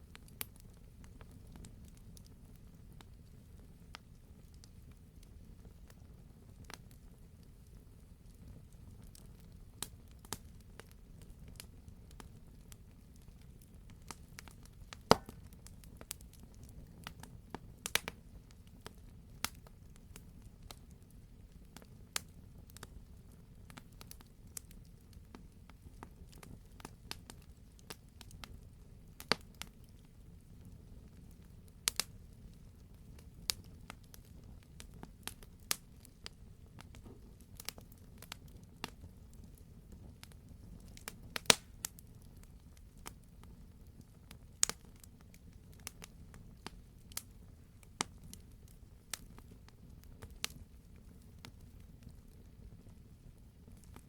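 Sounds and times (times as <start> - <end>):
low fire rumble: 0.0 - 54.0
wood fire crackling: 0.0 - 54.0
fire pops: 7.7 - 21.0, 31.8 - 32.2, 33.1 - 43.2, 44.3 - 52.9, 53.7 - 54.0.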